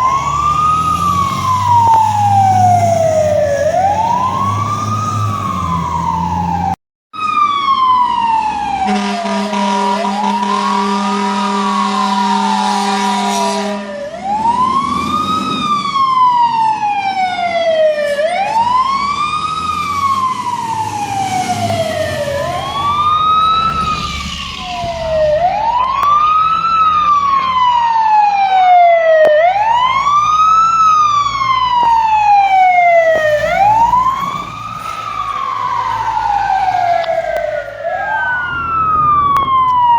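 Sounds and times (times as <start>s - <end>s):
fire truck siren wailing: 0.0s - 39.9s
air horn blast: 8.8s - 13.9s.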